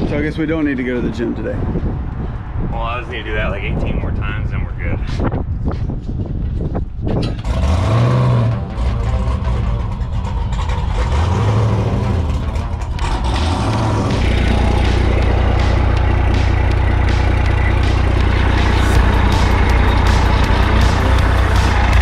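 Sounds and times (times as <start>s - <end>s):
large vehicle engine revving: 7.2s - 22.0s.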